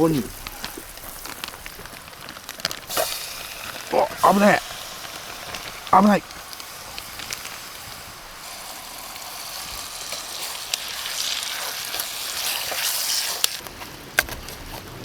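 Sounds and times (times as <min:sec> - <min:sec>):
oil spattering pops: 0:00.0 - 0:07.7
meat sizzling in hot oil: 0:00.0 - 0:13.7.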